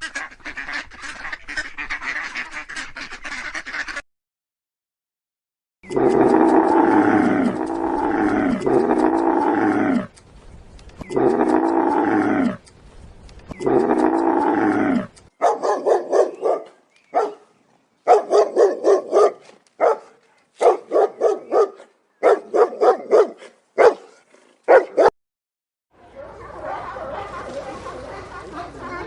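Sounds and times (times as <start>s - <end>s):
long drawn-out animal calls: 13.6s - 15.2s
dog barking: 15.4s - 17.5s, 18.1s - 25.1s, 26.1s - 28.3s.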